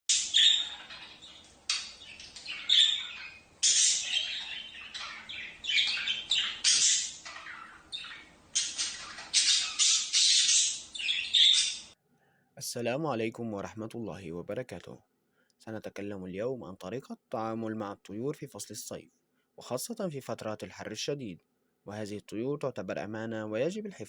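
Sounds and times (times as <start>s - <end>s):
birds squawking harshly: 0.1s - 12.0s.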